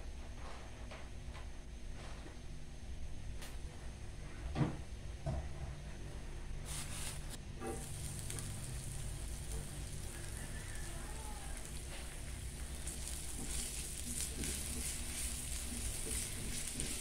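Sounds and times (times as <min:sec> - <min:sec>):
ginger sizzling in hot oil: 0:06.6 - 0:17.0.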